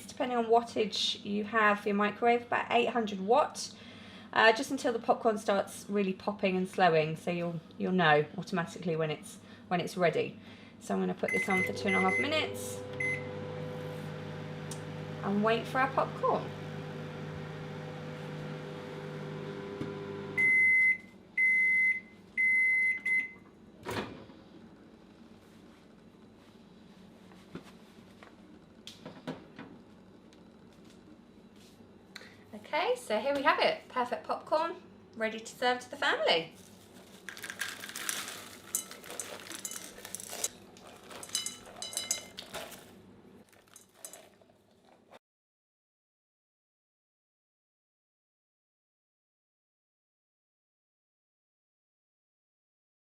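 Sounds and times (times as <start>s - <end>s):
microwave oven humming: 10.4s - 32.4s
microwave beeps: 11.3s - 15.2s, 16.6s - 23.5s
microwave click: 11.4s - 15.2s
kitchenware clinking: 37.5s - 42.9s, 43.5s - 45.0s.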